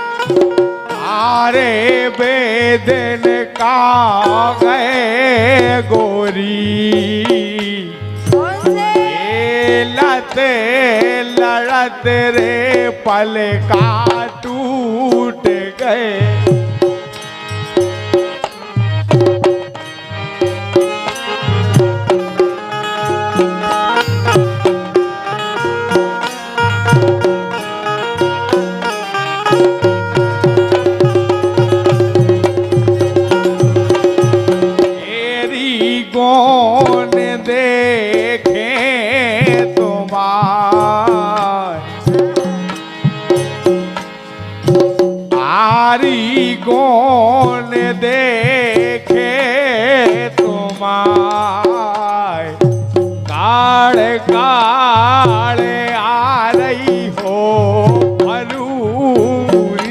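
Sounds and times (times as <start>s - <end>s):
folk drums beating: 0.0s - 59.9s
light percussion: 0.0s - 59.9s
sustained melody line: 0.0s - 59.9s
fast dense drum beat: 6.8s - 11.3s.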